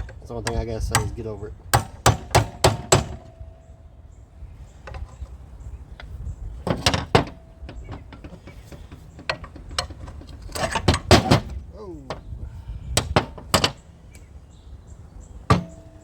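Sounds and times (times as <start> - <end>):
metal tools clinking on pump casing: 6.6 - 11.5.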